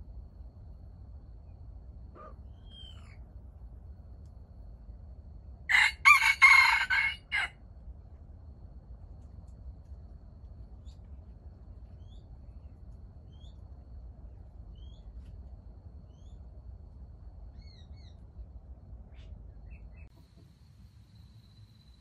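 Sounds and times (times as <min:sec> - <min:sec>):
low steady rumble: 0:00.0 - 0:22.0
small birds chirping: 0:02.2 - 0:03.3, 0:11.8 - 0:13.7, 0:14.7 - 0:15.4, 0:16.0 - 0:16.5, 0:17.4 - 0:18.4, 0:19.1 - 0:20.2.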